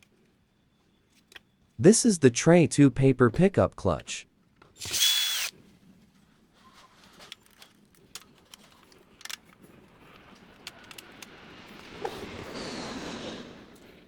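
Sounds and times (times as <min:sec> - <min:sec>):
plastic and metal parts clicking: 0:07.2 - 0:11.4.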